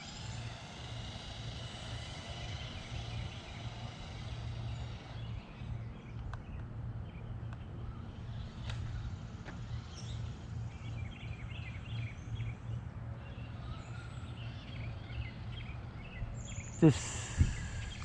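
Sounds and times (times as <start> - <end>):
toy car electric motor whining: 0.0 - 5.8, 16.7 - 18.0
low steady rumble: 0.0 - 18.0.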